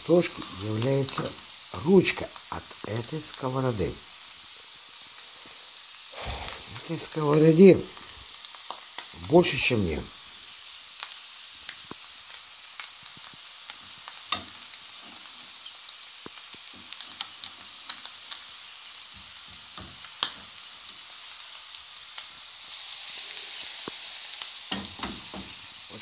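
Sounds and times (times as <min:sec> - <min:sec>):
food sizzling in a frying pan: 0:00.0 - 0:26.0
crackles and pops of oil: 0:11.0 - 0:18.4, 0:19.0 - 0:20.6, 0:23.8 - 0:25.6.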